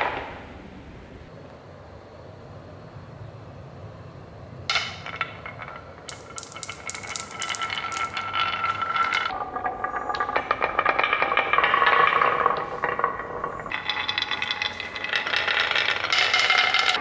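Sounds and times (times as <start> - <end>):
marbles rolling on a track: 4.7 - 17.0.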